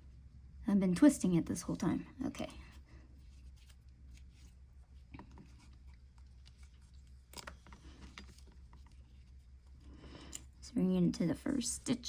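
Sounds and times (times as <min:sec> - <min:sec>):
low steady hum: 0:00.0 - 0:12.0
yarn rustling and hook clicks: 0:05.1 - 0:09.4.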